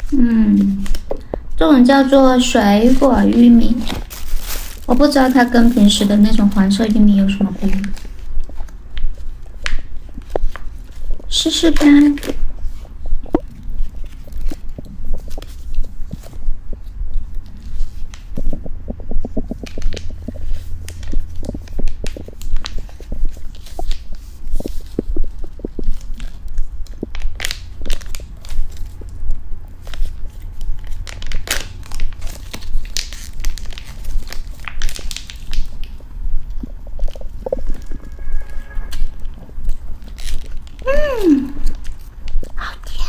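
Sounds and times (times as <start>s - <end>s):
low hum: 0.0s - 43.0s
person chewing corn on the cob: 3.8s - 4.9s, 7.8s - 11.3s, 12.2s - 43.0s.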